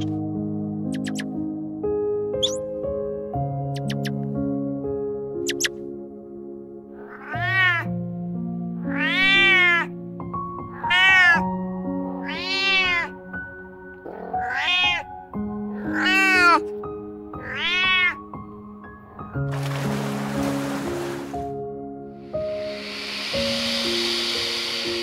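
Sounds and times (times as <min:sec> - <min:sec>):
soft background music: 0:00.0 - 0:25.0
kittens mewing: 0:07.0 - 0:07.9, 0:08.8 - 0:09.9, 0:10.7 - 0:11.4, 0:12.2 - 0:13.2, 0:14.0 - 0:16.7, 0:17.4 - 0:18.2.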